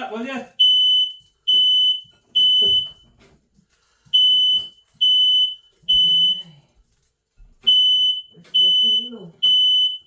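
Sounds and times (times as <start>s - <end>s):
smoke alarm beeping: 0.5s - 3.3s, 4.1s - 6.6s, 7.6s - 10.0s.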